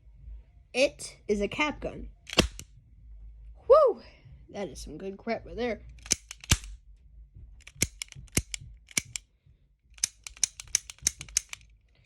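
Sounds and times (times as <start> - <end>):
toy cap gun firing: 2.3 - 2.7, 6.0 - 6.7, 7.6 - 9.2, 10.0 - 11.6.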